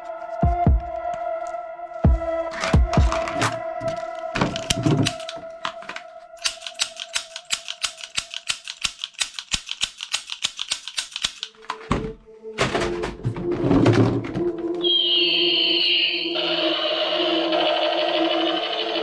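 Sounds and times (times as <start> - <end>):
toy gun clicking: 4.6 - 5.4, 6.4 - 11.6
steady electronic tone: 14.8 - 19.0.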